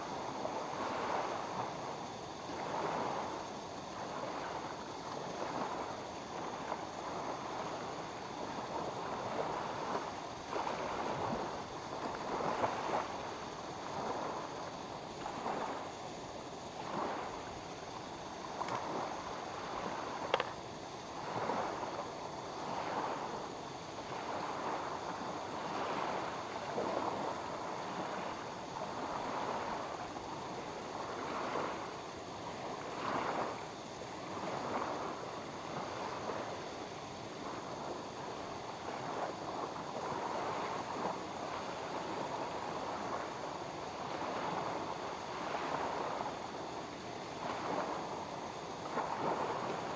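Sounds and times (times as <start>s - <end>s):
small waves lapping at shore: 0.0s - 49.9s.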